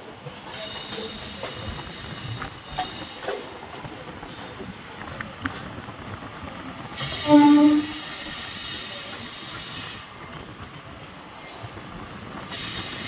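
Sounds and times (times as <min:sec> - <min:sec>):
passing train running noise: 0:00.0 - 0:13.0
train horn: 0:07.1 - 0:08.2.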